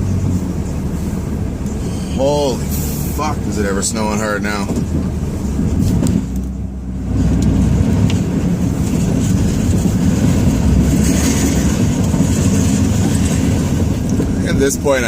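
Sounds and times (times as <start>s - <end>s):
diesel engine rumbling under load: 0.0s - 15.0s.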